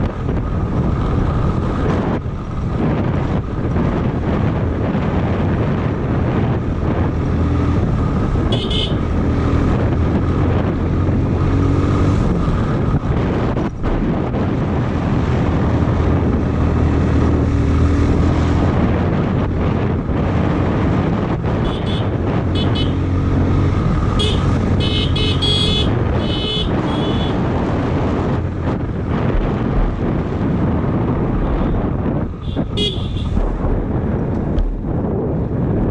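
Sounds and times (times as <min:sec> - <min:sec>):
motorcycle engine running: 0:00.0 - 0:35.8
wind noise: 0:00.0 - 0:35.9
short horn toots: 0:32.4 - 0:33.4.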